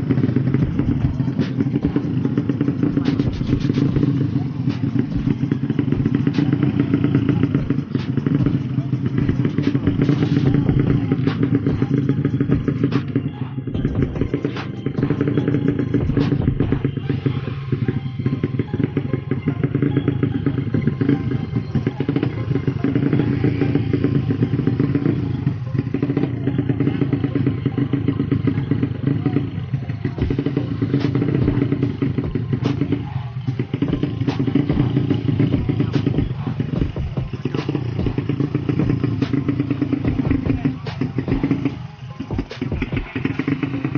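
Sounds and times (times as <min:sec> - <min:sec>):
motorcycle engine fast idle: 0:17.8 - 0:43.9.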